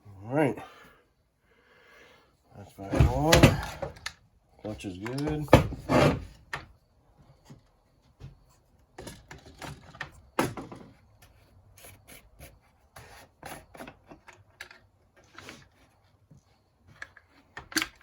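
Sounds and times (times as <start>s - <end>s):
tools scraping and clicking: 5.0s - 6.3s.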